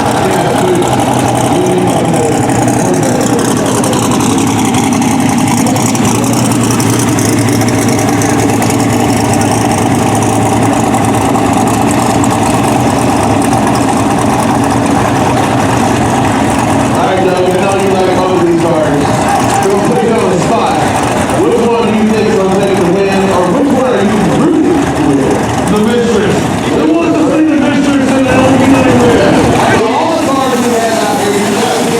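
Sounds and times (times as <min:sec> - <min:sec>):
race car engines idling: 0:00.0 - 0:31.9.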